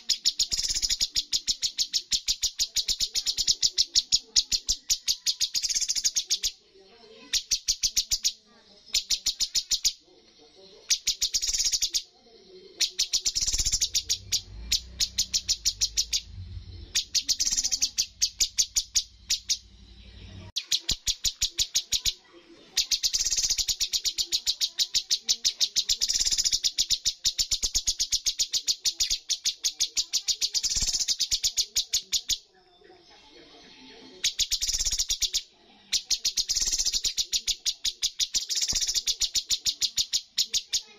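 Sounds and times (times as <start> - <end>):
low hum: 16.1 - 17.2.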